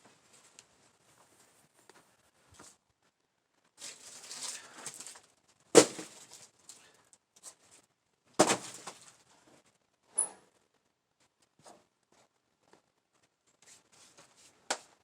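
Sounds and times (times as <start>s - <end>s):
rustling scrape: 3.8s - 5.2s.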